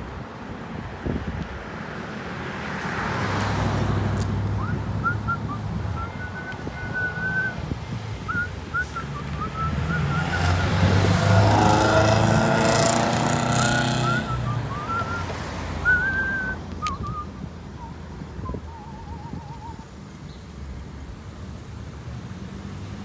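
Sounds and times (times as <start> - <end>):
wind buffeting microphone: 0.0 - 1.8, 4.3 - 20.1
road noise: 0.0 - 23.0
vehicle engine hum: 0.0 - 23.0
faint high chirps: 20.1 - 21.4.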